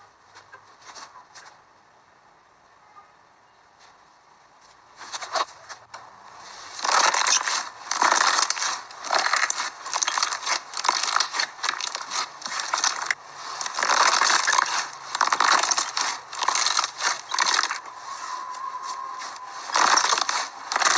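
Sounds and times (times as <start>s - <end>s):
slime crunchy crackling: 6.8s - 20.9s.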